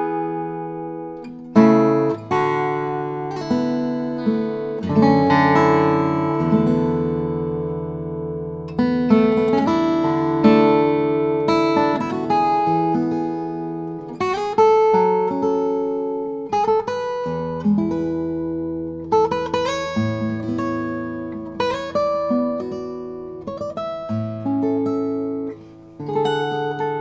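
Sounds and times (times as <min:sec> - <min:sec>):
acoustic guitar fingerstyle: 0:00.0 - 0:27.0.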